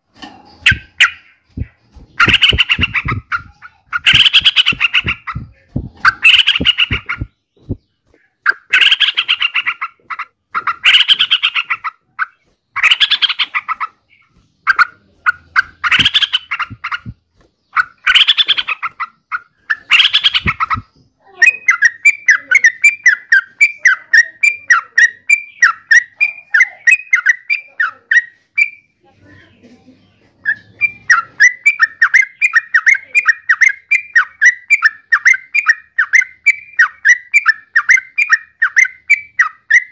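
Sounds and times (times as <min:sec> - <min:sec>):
bulbul chattering calls: 0:00.0 - 0:39.9
bird rapid short notes: 0:00.5 - 0:10.0.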